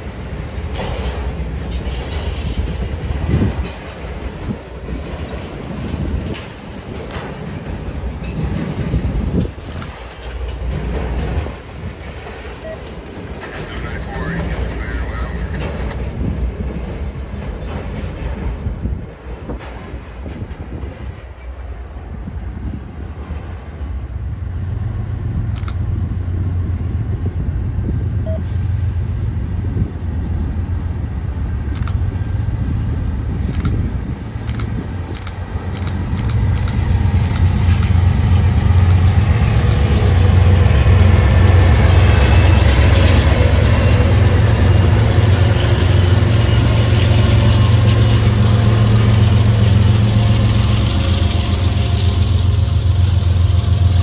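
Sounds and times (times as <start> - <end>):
train rumbling past: 0.0 - 54.0
wheels clicking over rails: 33.5 - 51.6.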